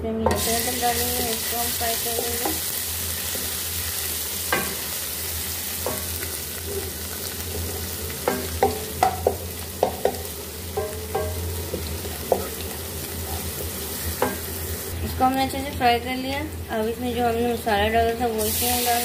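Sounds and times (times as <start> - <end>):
garlic sizzling in hot oil: 0.3 - 19.0
wooden spoon knocking on pan: 4.5 - 4.9, 5.8 - 12.6.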